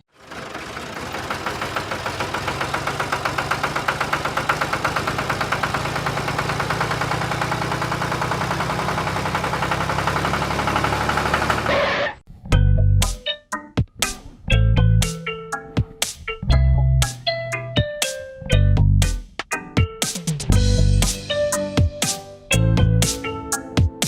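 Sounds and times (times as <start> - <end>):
small tractor engine running: 0.0 - 12.2.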